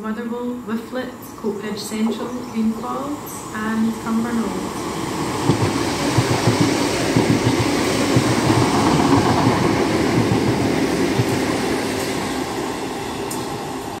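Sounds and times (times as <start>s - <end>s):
train wheels rumbling on rail: 1.9s - 14.0s.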